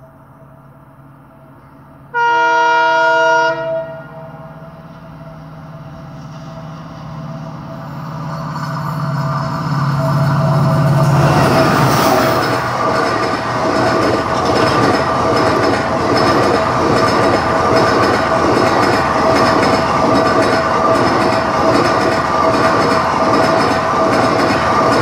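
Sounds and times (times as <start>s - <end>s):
train wheels clattering over rails: 8.4s - 25.0s.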